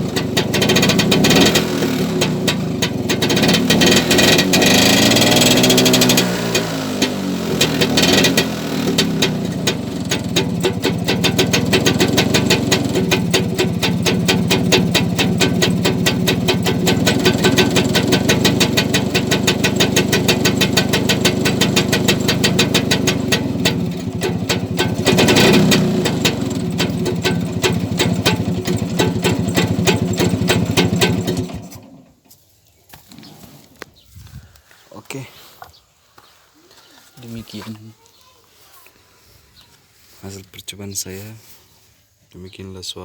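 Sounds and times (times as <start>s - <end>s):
scooter engine popping exhaust: 0.0s - 32.2s.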